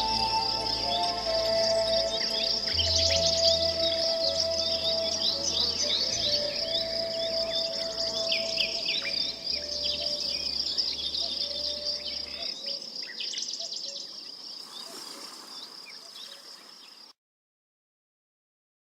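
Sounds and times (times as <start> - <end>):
low drone: 0.0 - 12.4
birds chirping: 0.0 - 17.1
insect trill: 0.0 - 17.1.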